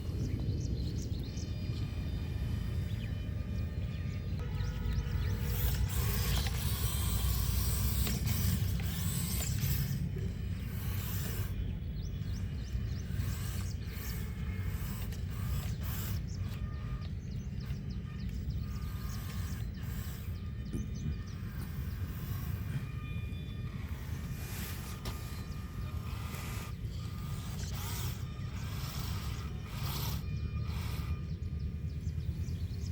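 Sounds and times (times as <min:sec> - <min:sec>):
steady low rumble: 0:00.0 - 0:32.9
mechanical clicking and ratcheting: 0:04.4 - 0:23.0, 0:23.6 - 0:31.3.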